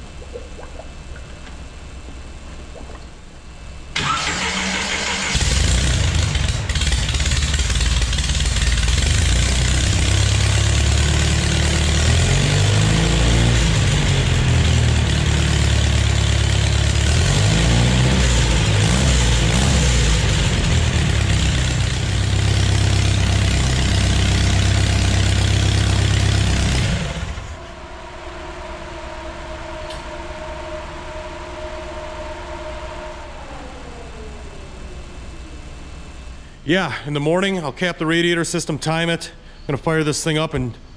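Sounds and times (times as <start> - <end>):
steady hum: 0.0 - 4.1, 27.0 - 40.9
engine revs rising and falling: 4.0 - 36.1.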